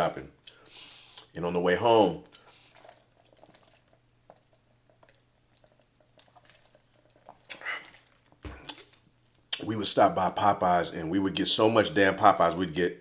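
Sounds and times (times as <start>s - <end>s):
person chewing and mouth sounds: 2.3s - 9.7s
soft mouth clicks: 7.4s - 8.0s.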